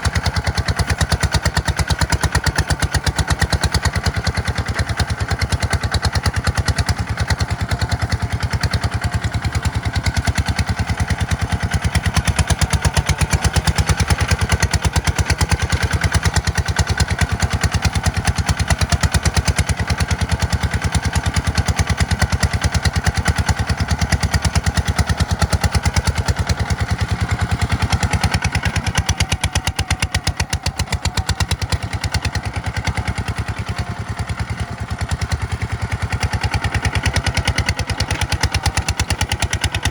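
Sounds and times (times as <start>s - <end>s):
tractor diesel engine chugging: 0.0s - 39.9s.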